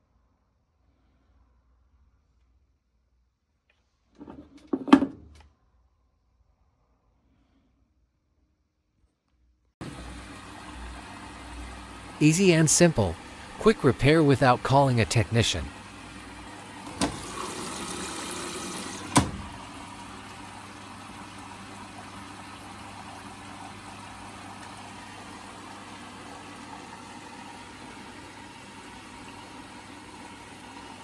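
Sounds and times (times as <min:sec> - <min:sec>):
washing machine filling with water: 0:09.8 - 0:31.0.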